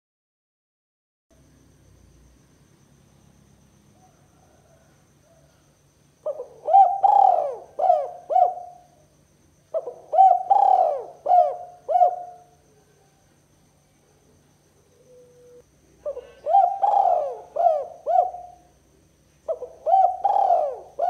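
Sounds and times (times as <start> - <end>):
dove cooing: 6.2 - 9.0, 9.7 - 13.2, 14.9 - 18.8, 19.5 - 21.0.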